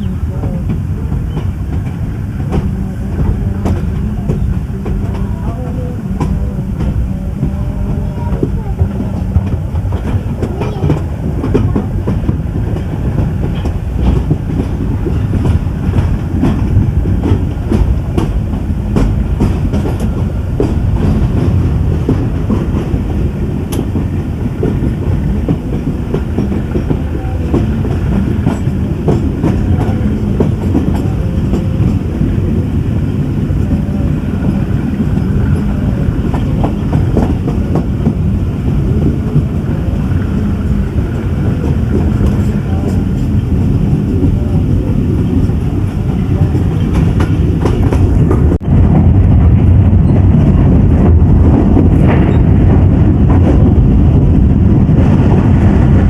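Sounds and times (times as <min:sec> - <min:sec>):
train coaches rumbling on track: 0:00.0 - 0:56.0.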